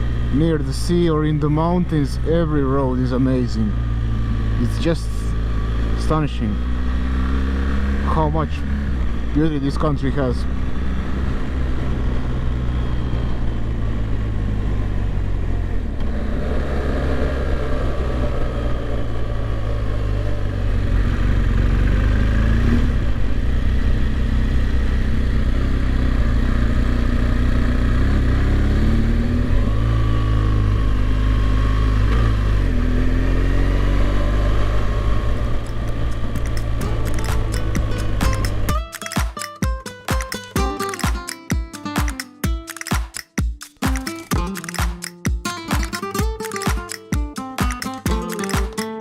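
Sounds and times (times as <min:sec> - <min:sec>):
motorcycle engine running: 0:17.3 - 0:43.6.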